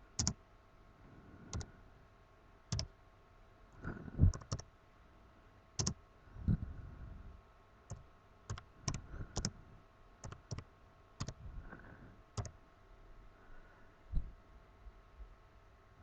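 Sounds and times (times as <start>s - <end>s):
mouse and keyboard clicks: 0.2s - 0.4s, 2.7s - 2.9s, 4.3s - 4.7s, 5.8s - 6.0s, 7.9s - 9.6s, 10.2s - 11.4s, 12.4s - 12.6s.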